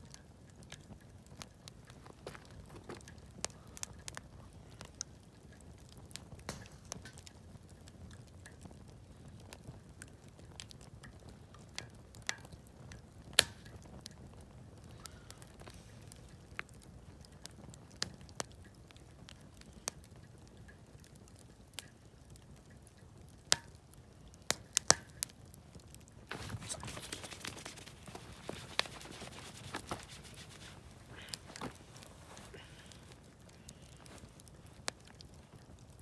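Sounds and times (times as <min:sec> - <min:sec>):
campfire crackling and popping: 0:00.0 - 0:36.0
steady hiss: 0:26.3 - 0:35.5.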